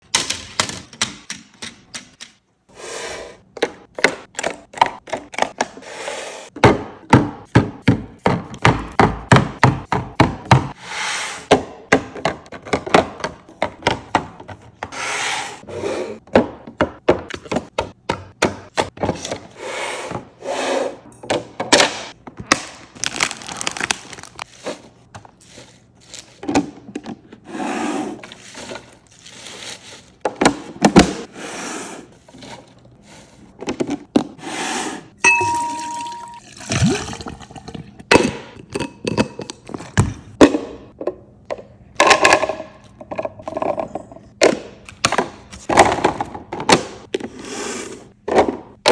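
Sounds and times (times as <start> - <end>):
containers knocking and clattering: 35.2 - 47.2.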